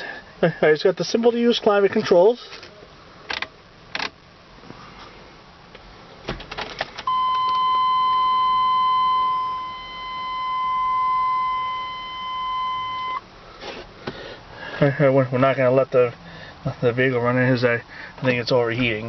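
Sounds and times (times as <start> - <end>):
dashboard electronic warning tone: 7.1 - 13.2.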